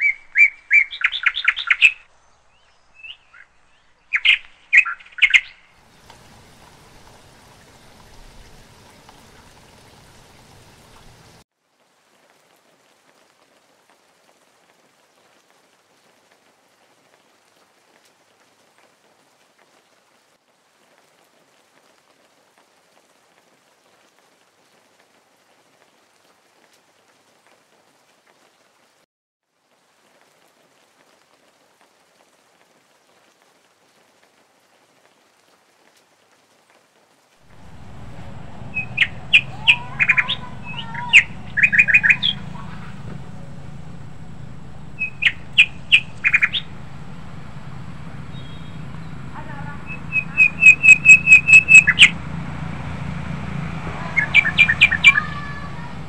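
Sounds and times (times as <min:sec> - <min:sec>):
small bird chirping: 0:00.0 - 0:11.1, 0:37.5 - 0:52.1, 0:54.2 - 0:55.5
low steady rumble: 0:05.8 - 0:11.4, 0:37.5 - 0:56.0.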